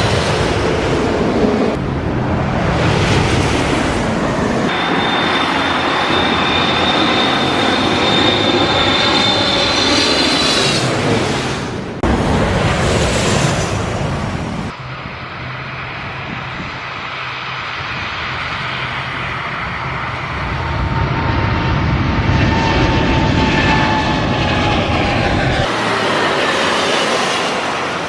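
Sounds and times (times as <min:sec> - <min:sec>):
jet engines rushing: 0:00.0 - 0:28.0
high falling whine: 0:04.2 - 0:11.3.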